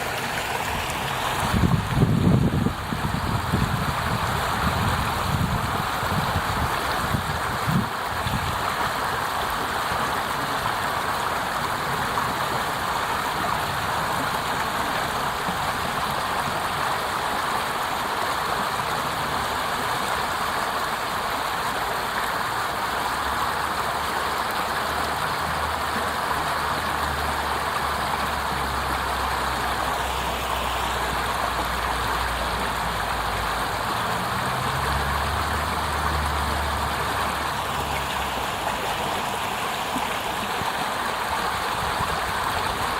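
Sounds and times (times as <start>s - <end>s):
water rushing over cascade: 0.0s - 42.9s.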